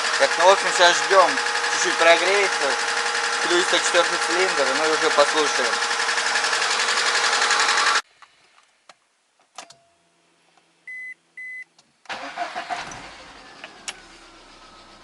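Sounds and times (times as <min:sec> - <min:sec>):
car engine running roughly: 0:00.0 - 0:08.0, 0:12.1 - 0:15.0.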